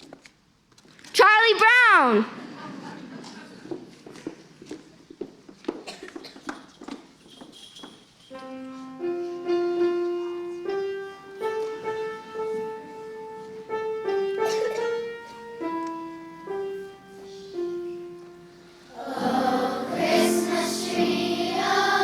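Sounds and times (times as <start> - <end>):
slow piano melody: 8.3 - 22.0.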